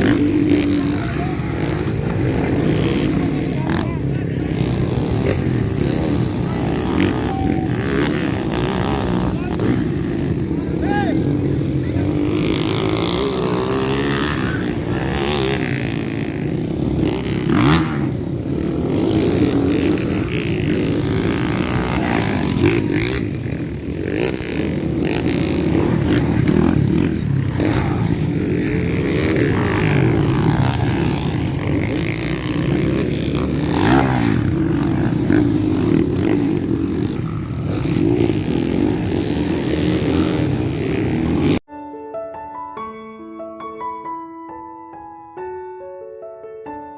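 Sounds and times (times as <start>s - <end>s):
dirt bike engines revving: 0.0s - 41.6s
piano music: 41.7s - 46.9s.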